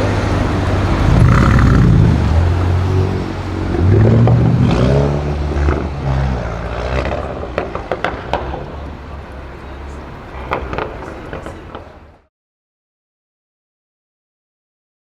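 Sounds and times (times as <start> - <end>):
car engine accelerating: 0.0 - 11.4.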